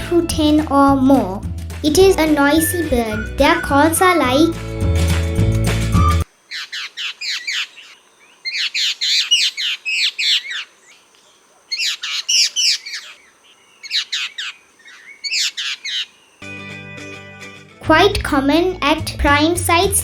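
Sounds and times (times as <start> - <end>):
babblers chattering: 1.9 - 4.6, 11.3 - 16.1.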